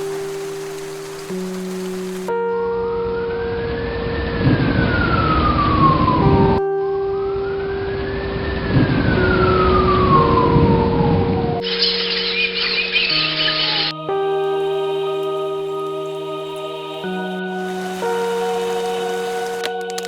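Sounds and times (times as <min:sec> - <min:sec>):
held music notes: 0:05.4 - 0:20.0.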